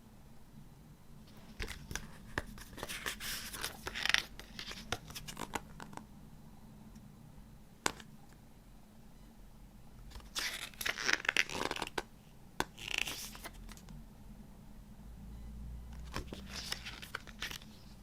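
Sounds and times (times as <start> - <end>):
paper and card rustling: 1.3 - 5.7, 12.7 - 13.8, 16.0 - 18.0.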